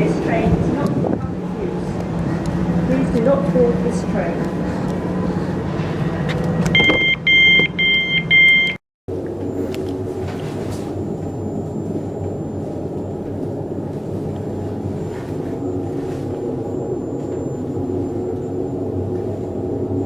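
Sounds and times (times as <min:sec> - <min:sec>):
train interior rumble: 0:00.0 - 0:08.4
two-tone door warning beeps: 0:05.8 - 0:08.8, 0:09.5 - 0:20.0.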